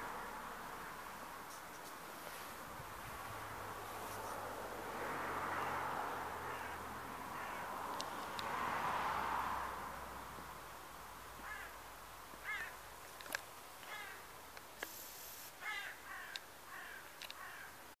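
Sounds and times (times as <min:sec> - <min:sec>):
bird calling: 0:06.4 - 0:08.2, 0:11.4 - 0:12.8, 0:13.8 - 0:14.3, 0:15.2 - 0:17.8
sharp clicks: 0:17.2 - 0:17.4.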